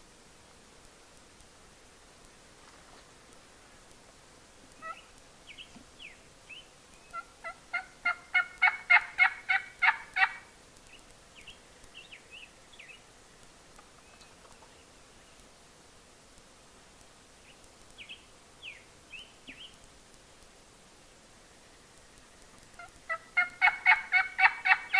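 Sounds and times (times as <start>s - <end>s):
turkey yelping: 4.8s - 5.0s, 7.1s - 10.4s, 22.8s - 24.9s
faint bird chirps: 4.8s - 7.3s, 10.9s - 13.1s, 14.0s - 15.4s, 17.4s - 19.8s.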